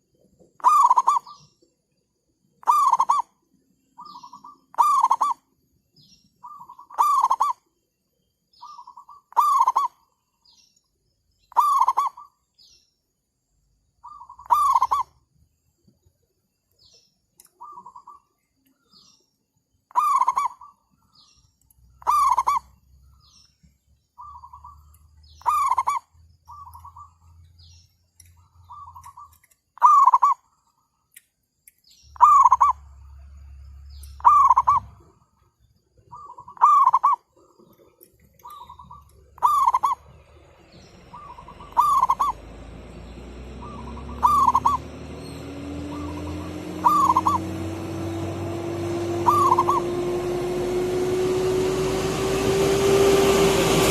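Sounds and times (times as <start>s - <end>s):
doves cooing: 14.1s - 15.1s, 22.0s - 22.8s, 32.2s - 32.9s, 34.2s - 35.2s, 36.0s - 51.1s
low drone rising in pitch: 38.6s - 53.9s.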